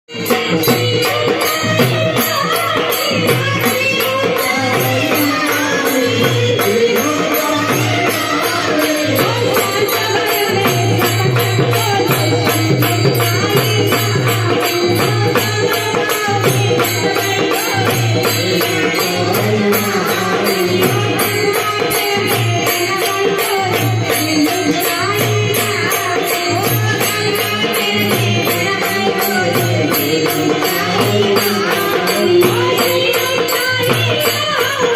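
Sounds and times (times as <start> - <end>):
drum beat: 0.1 - 34.9
hand cymbals jingling: 0.1 - 34.9.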